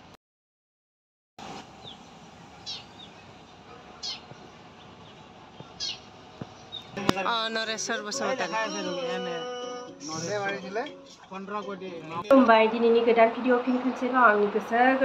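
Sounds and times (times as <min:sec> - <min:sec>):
steady outdoor hiss: 0:01.4 - 0:15.0
faint bird chirps: 0:04.0 - 0:07.0.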